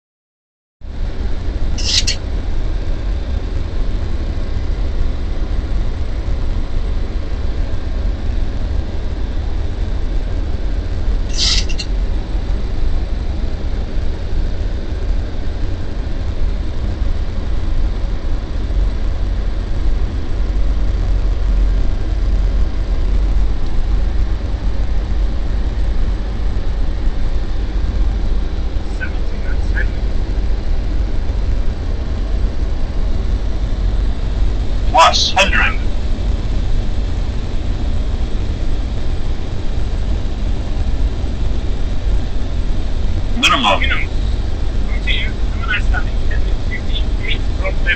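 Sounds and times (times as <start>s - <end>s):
airliner cabin engine rumble: 0.9s - 47.9s
high-pitched chirps: 1.8s - 2.2s, 11.3s - 11.9s.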